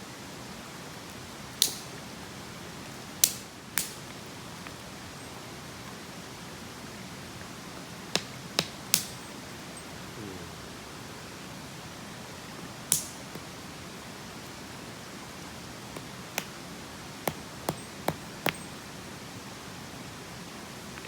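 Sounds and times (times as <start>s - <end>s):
mountain stream rushing: 9.3s - 21.0s
sharp cracks: 12.9s - 13.5s.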